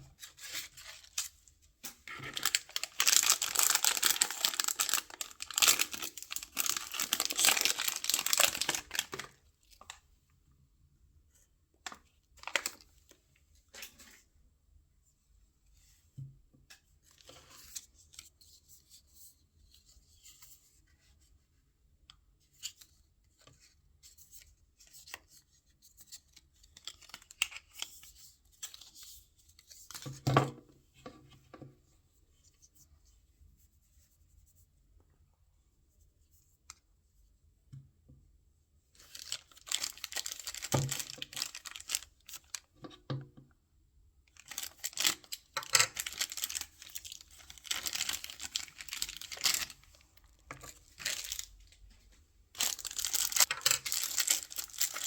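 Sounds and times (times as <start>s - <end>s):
packaging tearing and crinkling: 2.2s - 9.4s, 39.0s - 42.6s, 44.4s - 51.5s, 52.6s - 55.0s.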